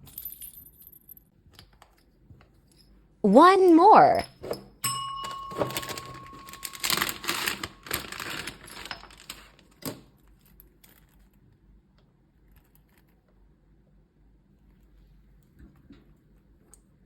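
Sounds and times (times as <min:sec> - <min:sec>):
bag clicking and crinkling: 0:05.2 - 0:10.0.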